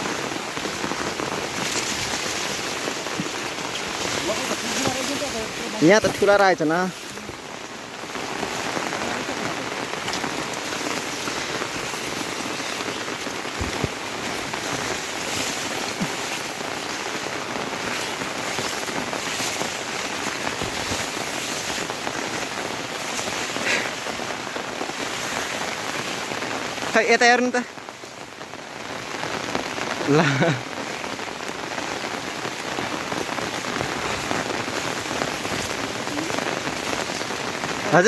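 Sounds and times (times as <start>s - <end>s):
loud raindrop hits: 0.0s - 38.0s
rain falling: 0.0s - 38.0s.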